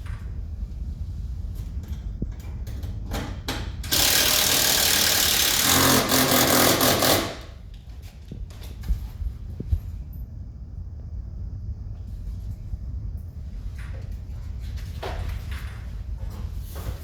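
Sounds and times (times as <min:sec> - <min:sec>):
low steady rumble: 0:00.0 - 0:06.2, 0:07.4 - 0:17.0
hand-held power tool running: 0:03.9 - 0:07.6.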